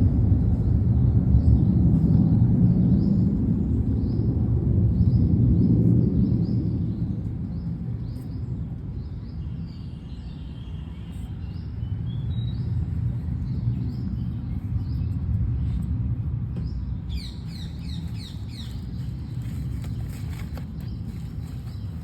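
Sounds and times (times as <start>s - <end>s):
steady low rumble: 0.0s - 10.2s, 11.0s - 22.0s
small birds chirping: 4.9s - 22.0s.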